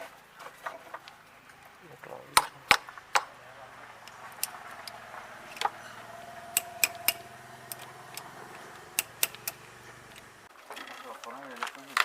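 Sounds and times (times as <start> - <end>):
hand tools clicking: 2.4 - 3.4, 4.0 - 10.4.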